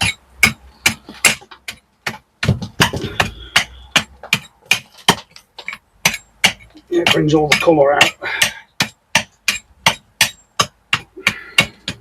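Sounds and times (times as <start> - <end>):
hammer knocking on stone: 0.0 - 12.0.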